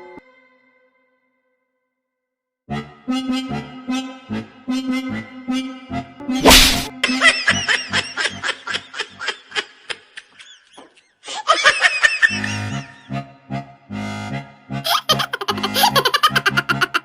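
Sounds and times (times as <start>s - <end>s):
comedic background music: 2.8s - 10.4s, 11.3s - 17.0s
high-pitched laughter: 7.0s - 13.0s, 14.9s - 17.0s.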